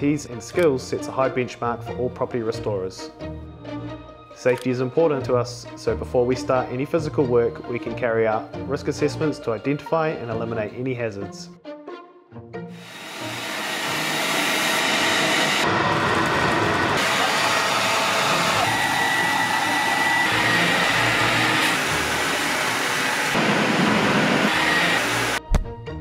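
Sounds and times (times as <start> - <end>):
air mover rushing: 12.8 - 25.4.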